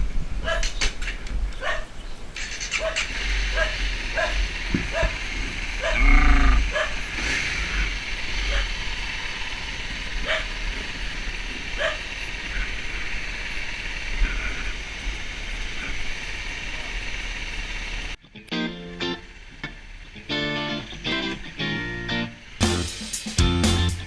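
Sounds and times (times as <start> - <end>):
dog barks: 0.4 - 0.8, 1.6 - 1.9, 2.7 - 5.2, 5.8 - 7.2, 8.4 - 8.8, 10.2 - 10.6, 11.7 - 12.2
motorbike running: 2.4 - 18.2
wind rushing: 5.9 - 13.3.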